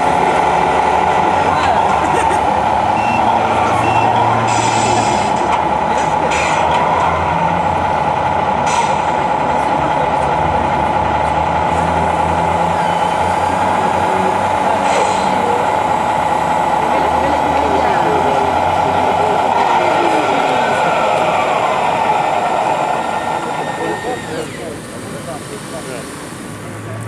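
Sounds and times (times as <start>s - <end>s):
model truck diesel engine sound: 0.0s - 27.0s.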